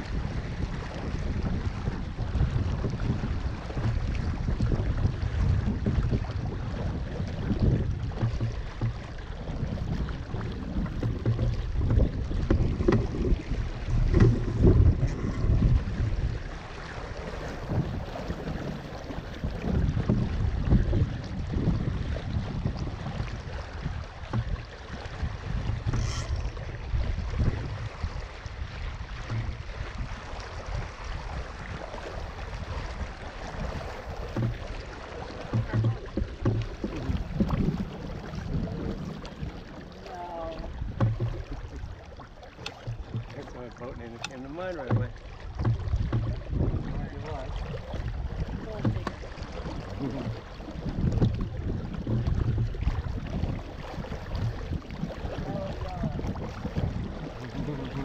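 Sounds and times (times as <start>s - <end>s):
water splashing against hull: 0.0s - 58.0s
wind buffeting microphone: 0.0s - 58.0s
knocks: 8.2s - 9.0s, 35.5s - 37.7s, 41.0s - 41.6s, 44.8s - 46.4s.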